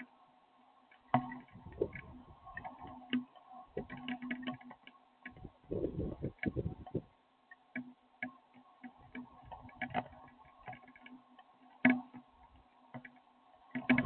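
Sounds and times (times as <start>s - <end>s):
electrical hum: 1.4s - 3.0s, 5.3s - 7.1s
ticks and taps: 13.8s - 14.0s.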